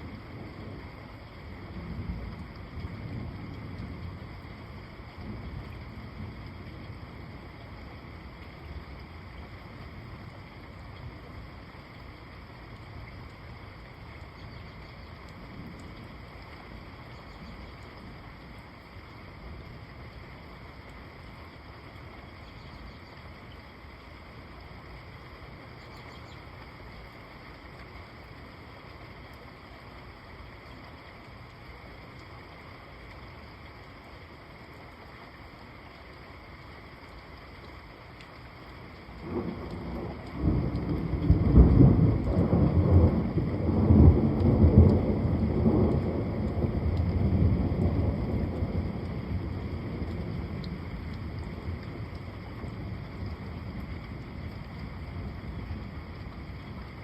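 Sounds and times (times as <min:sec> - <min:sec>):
steady rain: 0:00.0 - 0:57.0
rolling thunder: 0:39.2 - 0:52.1.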